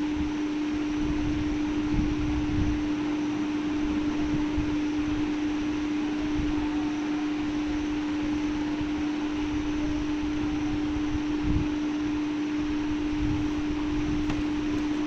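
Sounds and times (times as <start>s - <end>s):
machine hum: 0.0s - 15.0s
low thump: 14.2s - 14.9s.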